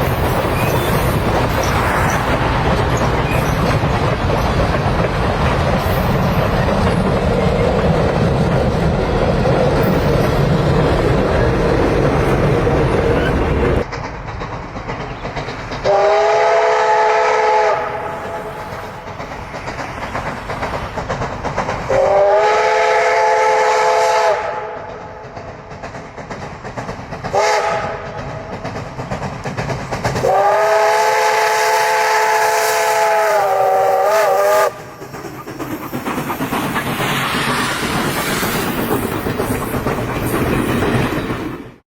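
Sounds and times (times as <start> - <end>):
train rumble and hiss: 0.0 - 41.8
steam locomotive whistle: 15.8 - 18.6, 21.9 - 25.0, 27.3 - 28.2, 30.2 - 35.0.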